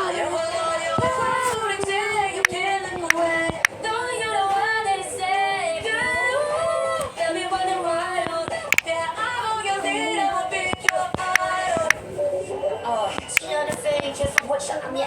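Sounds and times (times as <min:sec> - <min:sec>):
woman singing: 0:00.0 - 0:12.0, 0:12.8 - 0:15.0
pop music: 0:00.0 - 0:15.0
sharp clicks: 0:08.2 - 0:09.0, 0:10.6 - 0:12.0, 0:13.1 - 0:14.5.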